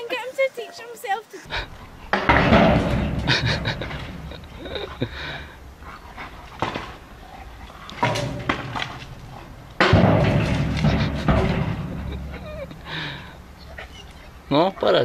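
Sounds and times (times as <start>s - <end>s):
metal gate clanking and rattling: 2.0s - 5.5s, 7.7s - 15.0s.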